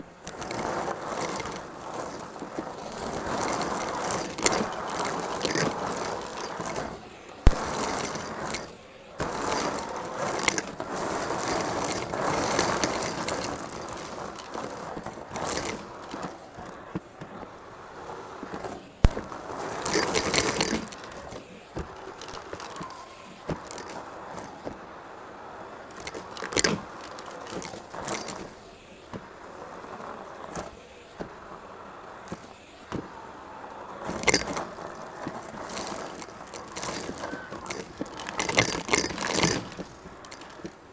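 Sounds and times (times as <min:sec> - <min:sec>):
vacuum brush scraping hard floor: 0:00.0 - 0:40.9.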